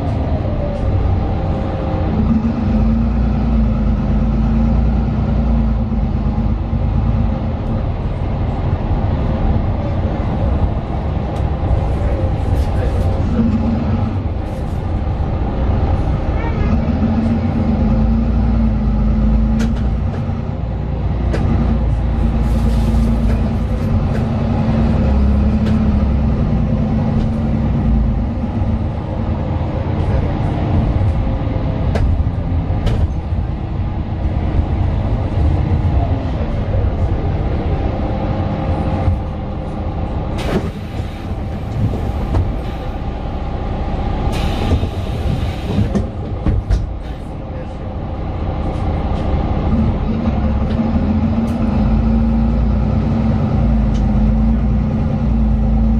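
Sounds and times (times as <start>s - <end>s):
bus diesel engine: 0.0s - 55.9s.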